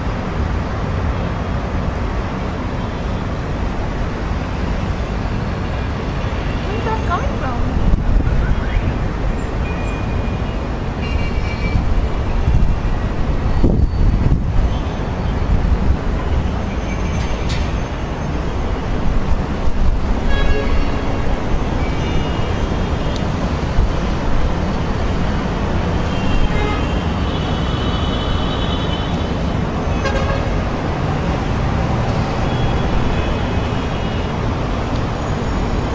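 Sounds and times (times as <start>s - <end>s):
street traffic rumble: 0.0s - 35.9s
car horns honking: 26.1s - 29.1s, 29.9s - 30.6s.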